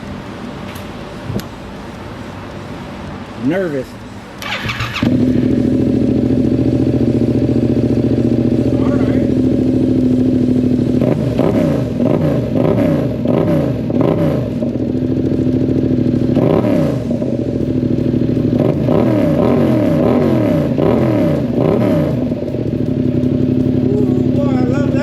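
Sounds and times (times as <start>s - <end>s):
motorcycle engine revving: 4.4s - 25.0s.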